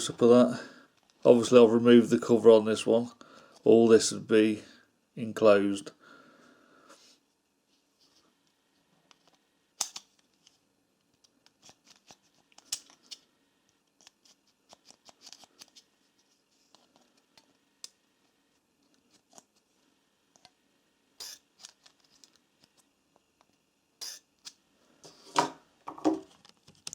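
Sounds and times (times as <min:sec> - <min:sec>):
small parts clicking and scraping: 0:09.0 - 0:18.0, 0:21.2 - 0:25.2.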